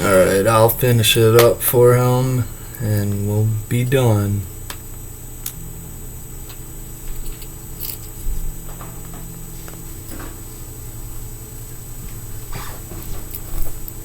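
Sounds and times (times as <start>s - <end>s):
steady low hum: 0.0s - 14.0s
small parts clicking and rustling: 6.5s - 8.2s.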